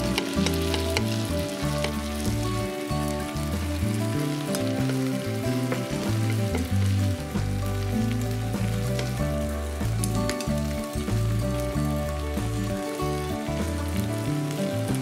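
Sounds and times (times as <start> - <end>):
chopsticks stirring food: 0.0 - 2.7, 3.6 - 7.0
background music: 0.0 - 15.0
food sizzling in a frying pan: 0.0 - 15.0.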